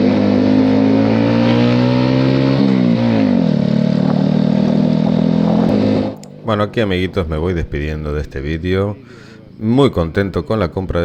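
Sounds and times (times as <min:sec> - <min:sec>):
motorcycle engine running: 0:00.0 - 0:06.3.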